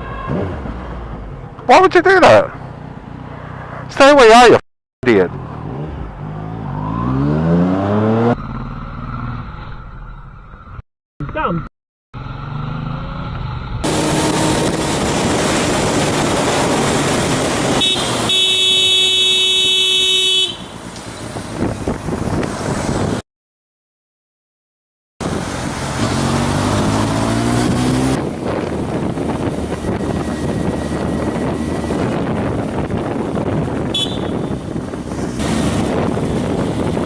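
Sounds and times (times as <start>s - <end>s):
motorcycle riding in traffic: 0.0s - 11.6s, 12.2s - 23.2s, 25.2s - 37.0s
wind and road noise: 0.0s - 11.6s, 12.2s - 23.2s, 25.2s - 37.0s
engine accelerating: 5.4s - 10.0s, 12.2s - 17.8s, 25.4s - 33.8s
vehicle horn blaring: 17.7s - 20.8s, 33.9s - 34.8s.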